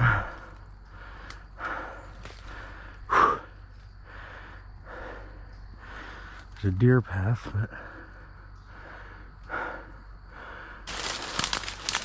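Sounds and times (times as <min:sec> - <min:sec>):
person breathing hard: 0:00.0 - 0:06.5, 0:07.7 - 0:12.0
pushing through thick brush: 0:10.9 - 0:12.0.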